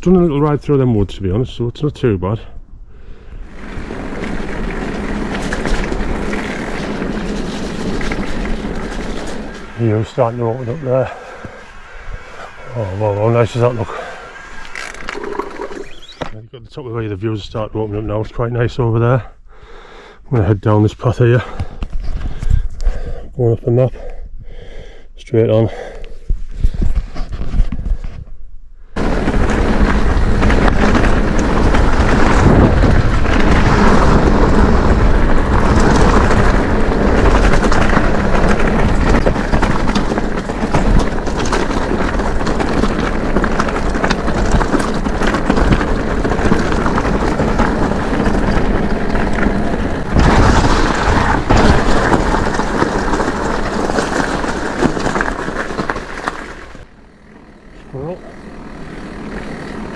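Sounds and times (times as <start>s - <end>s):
bike tyre rumble on trail: 0.0s - 23.3s, 25.6s - 59.9s
bike knocks and rattles: 3.5s - 16.4s, 29.0s - 59.9s
wind buffeting microphone: 29.0s - 55.7s.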